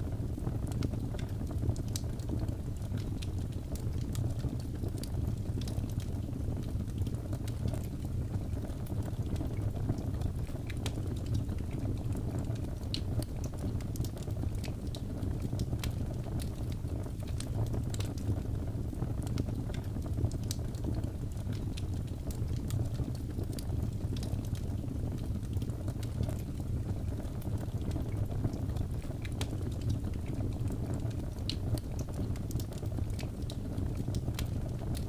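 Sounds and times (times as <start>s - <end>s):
wood fire crackling: 0.0s - 35.0s.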